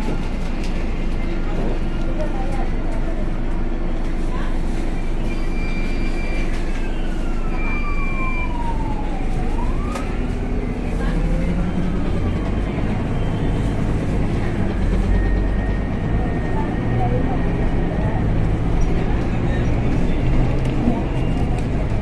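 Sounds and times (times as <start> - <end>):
bus engine running: 0.0 - 22.0.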